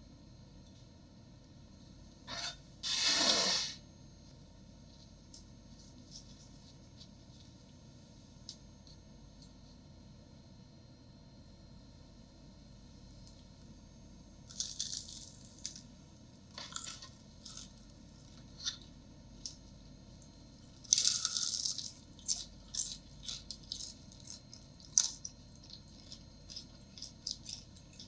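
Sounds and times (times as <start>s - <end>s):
fried fritters crunching: 14.5s - 15.9s, 16.6s - 19.6s, 20.7s - 28.0s.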